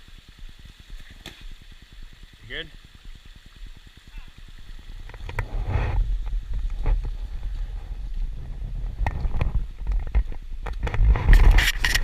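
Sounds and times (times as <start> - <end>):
wind buffeting microphone: 4.7 - 12.0.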